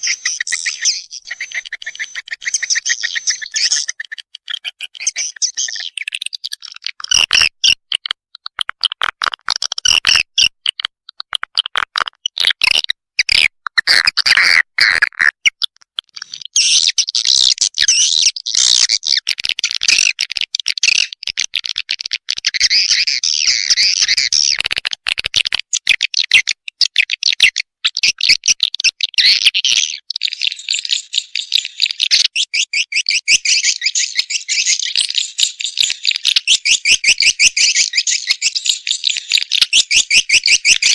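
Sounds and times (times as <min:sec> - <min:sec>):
swiftlets twittering chirps: 0:00.0 - 0:04.0.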